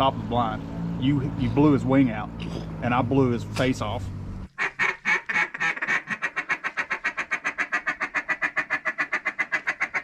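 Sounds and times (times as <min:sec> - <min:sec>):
duck call chuckle: 0:04.6 - 0:10.0.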